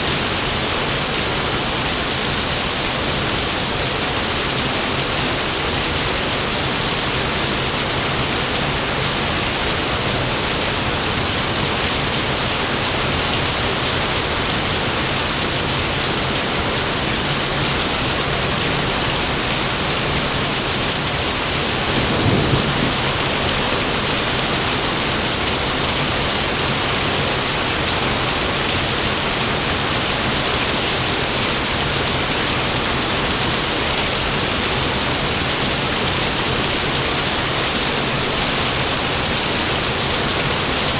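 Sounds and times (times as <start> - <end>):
heavy rain falling: 0.0 - 40.9
low rumble of thunder: 21.8 - 24.0.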